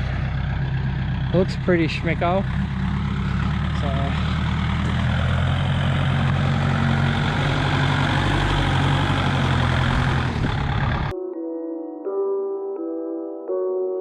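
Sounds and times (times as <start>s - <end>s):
tractor diesel engine running: 0.0s - 11.1s
soft piano music: 11.1s - 14.0s.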